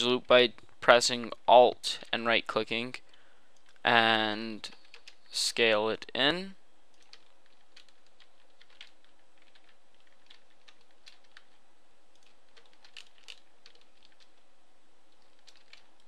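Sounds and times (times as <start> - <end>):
steady low hiss: 0.0 - 16.0
keyboard and mouse clicking: 6.9 - 14.4, 15.1 - 16.0.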